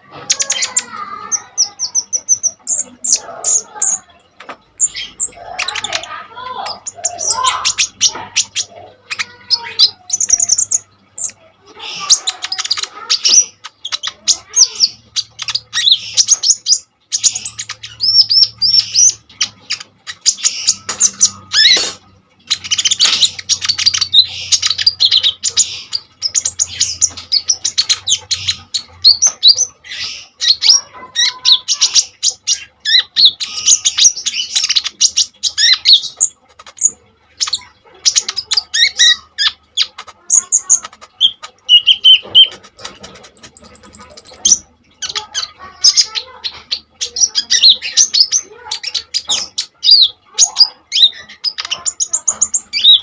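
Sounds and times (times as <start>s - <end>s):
sunbird rapid chirps and trills: 39.4s - 46.4s.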